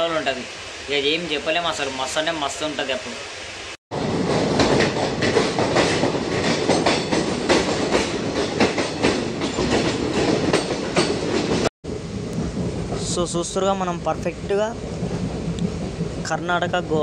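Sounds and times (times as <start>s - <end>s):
train rumble: 3.9s - 17.0s
wheels clattering over rails: 4.0s - 11.7s.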